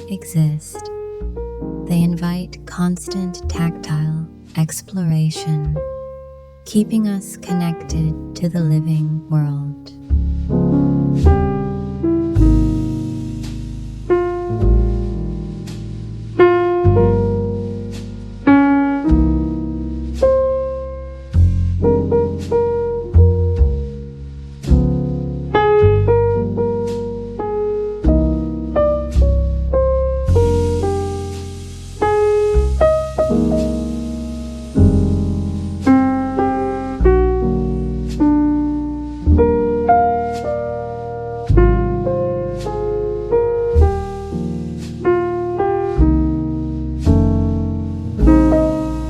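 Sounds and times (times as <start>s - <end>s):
low bass line: 0.0s - 5.9s, 46.0s - 49.0s
slow piano chords: 24.8s - 49.0s.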